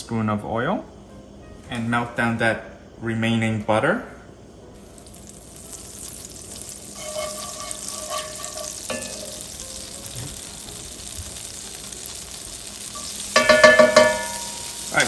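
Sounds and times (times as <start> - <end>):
oil and butter sizzling: 4.8 - 15.0.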